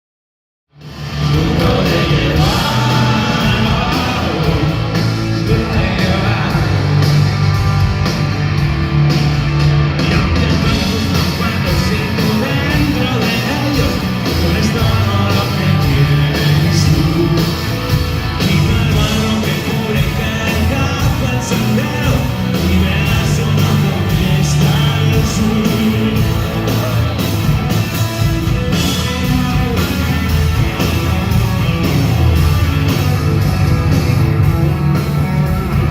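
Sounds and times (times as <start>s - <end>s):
bass guitar: 0.7s - 35.9s
drums: 0.7s - 35.9s
electric guitars: 0.8s - 35.9s
person singing: 1.2s - 7.2s, 10.0s - 17.7s, 18.3s - 27.3s.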